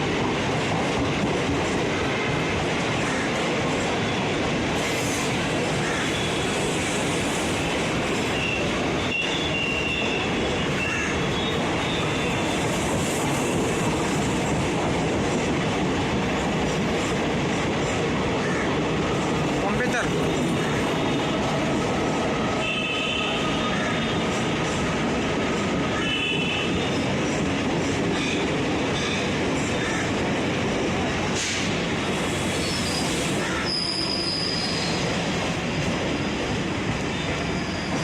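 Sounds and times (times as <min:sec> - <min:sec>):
train wheels running over rails: 0:00.0 - 0:38.0
high wheel squeals: 0:32.2 - 0:35.2, 0:37.2 - 0:38.0.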